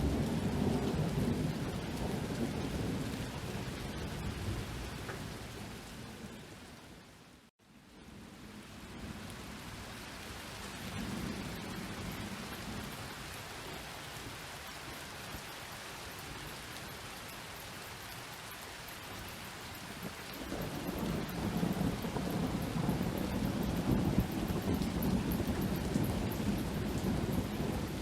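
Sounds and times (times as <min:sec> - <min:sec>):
thunder rumbling: 0:00.0 - 0:06.6, 0:19.9 - 0:28.0
steady rain: 0:00.0 - 0:28.0.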